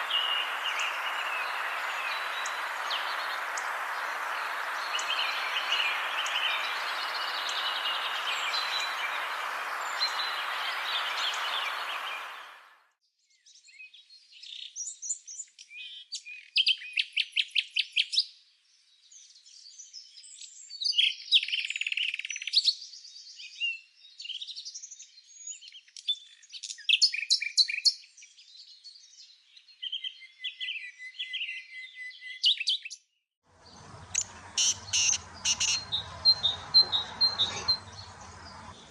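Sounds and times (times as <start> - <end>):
songbirds singing: 0.0 - 12.7, 33.6 - 38.9
steady rushing noise: 0.0 - 12.7.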